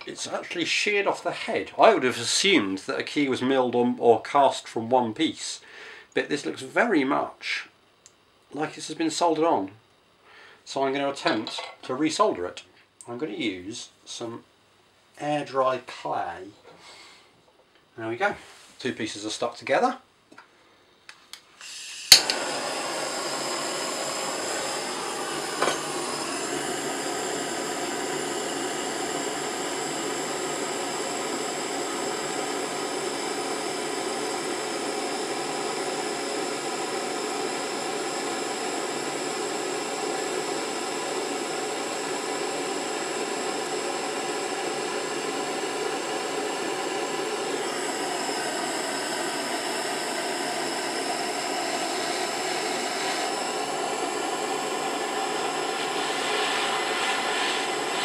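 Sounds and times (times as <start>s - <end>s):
blow torch igniter click: 21.3s - 31.1s
blow torch hissing: 21.6s - 58.0s.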